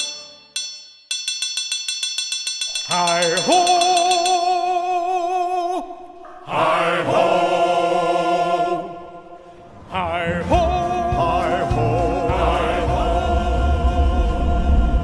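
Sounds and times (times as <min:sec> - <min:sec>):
wordless choir singing: 0:04.8 - 0:15.0
low rumble: 0:12.4 - 0:15.0.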